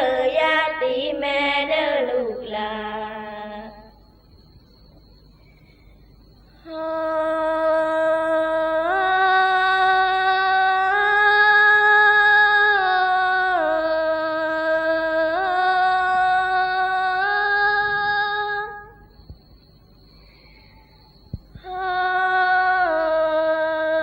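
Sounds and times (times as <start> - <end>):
woman singing wordless melisma: 0.0 - 4.1, 6.2 - 19.2, 21.5 - 24.0.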